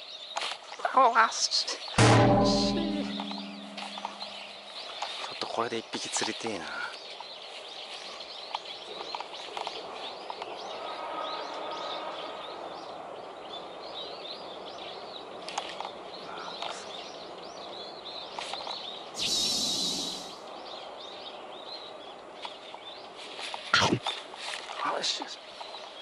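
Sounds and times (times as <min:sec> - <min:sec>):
small birds chirping: 0:00.0 - 0:26.0
outdoor hiss: 0:19.0 - 0:20.9.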